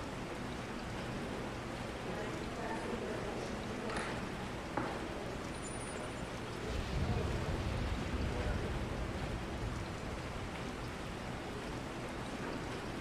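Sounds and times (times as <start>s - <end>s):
rain hiss: 0.0s - 13.0s
low rumble: 6.6s - 11.6s.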